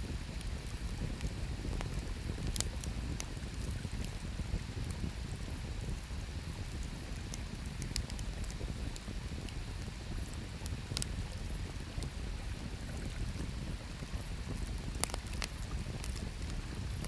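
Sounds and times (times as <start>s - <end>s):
campfire crackling and popping: 0.1s - 17.0s.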